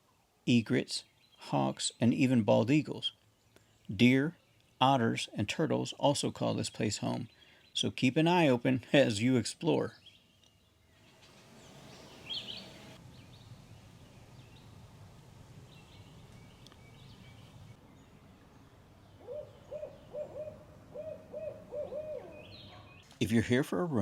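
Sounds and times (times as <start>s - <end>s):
high bird chirp: 10.0s - 14.7s, 15.7s - 23.1s
owl hooting: 19.2s - 22.8s.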